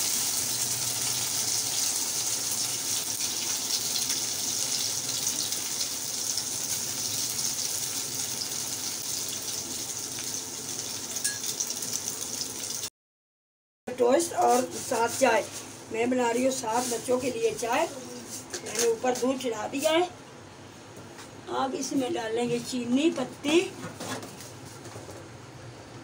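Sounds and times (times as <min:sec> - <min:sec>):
bread sizzling in frying pan: 0:00.0 - 0:12.9.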